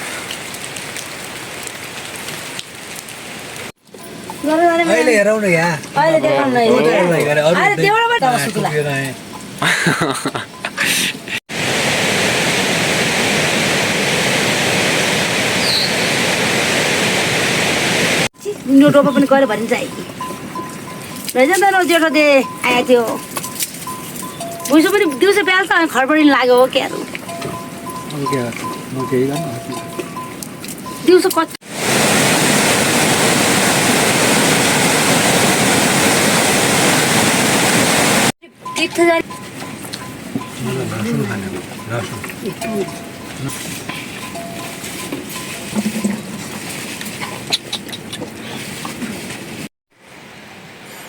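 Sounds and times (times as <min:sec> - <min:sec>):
steady rushing noise: 0:11.5 - 0:18.8, 0:31.6 - 0:38.3.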